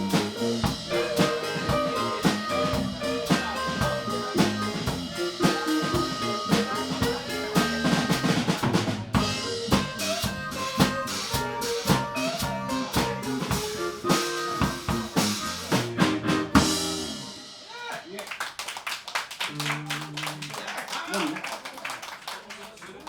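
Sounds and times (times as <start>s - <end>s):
blues band playing: 0.0s - 17.8s
drum kit: 0.0s - 18.0s.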